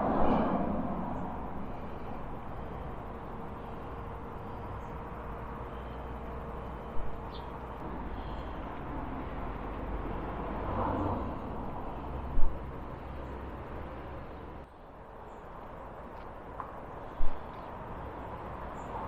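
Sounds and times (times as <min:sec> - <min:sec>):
vehicle passing: 0:00.0 - 0:04.9, 0:07.8 - 0:14.7
road traffic rumble: 0:00.0 - 0:19.0.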